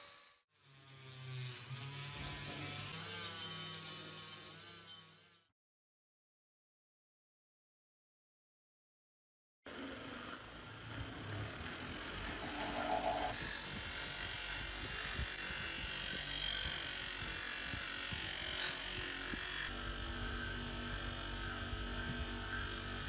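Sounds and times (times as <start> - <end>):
small power tool whirring: 9.7 - 23.0.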